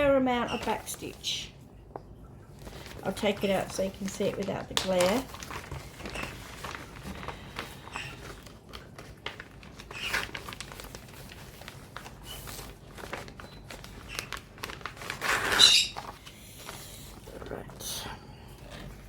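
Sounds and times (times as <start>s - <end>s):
plastic packaging crinkling: 2.5s - 17.7s.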